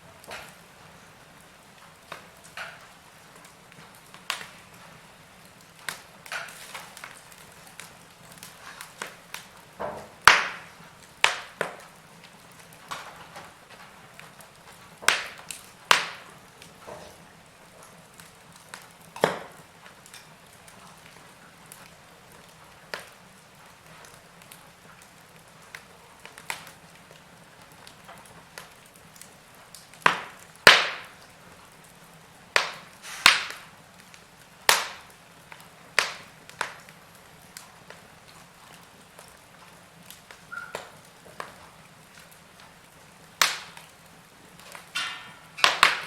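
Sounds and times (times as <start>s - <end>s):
faint steady hiss: 0.0s - 46.0s
wood fire crackling: 0.0s - 46.0s
sharp pops of fire: 0.1s - 46.0s.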